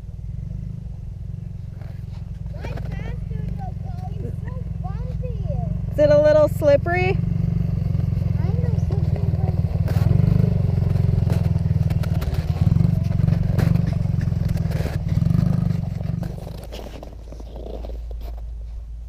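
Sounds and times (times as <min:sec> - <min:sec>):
dirt bike engine revving: 0:00.0 - 0:17.0
clatter and scraping: 0:01.5 - 0:18.9.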